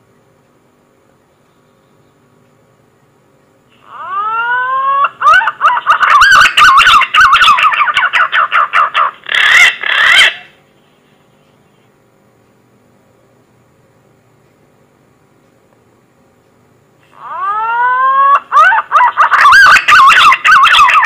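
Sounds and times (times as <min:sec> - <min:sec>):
green pigeon warbling whistles: 0:17.2 - 0:21.0.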